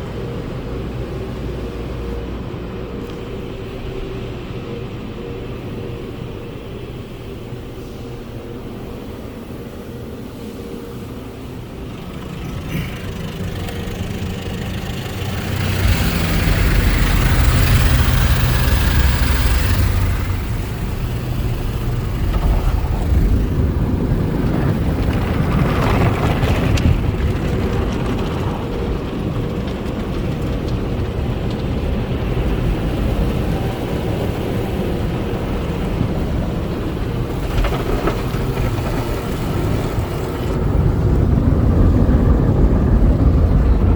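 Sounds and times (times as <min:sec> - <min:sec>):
car wash low rumble: 0:00.0 - 0:43.9
car wash rushing surge: 0:00.0 - 0:43.9.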